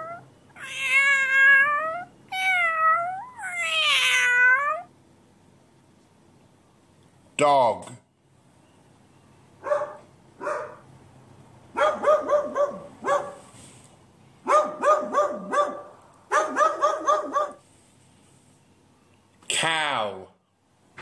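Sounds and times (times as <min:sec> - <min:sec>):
dog barking: 0:09.6 - 0:10.9, 0:11.7 - 0:13.5, 0:14.4 - 0:17.6.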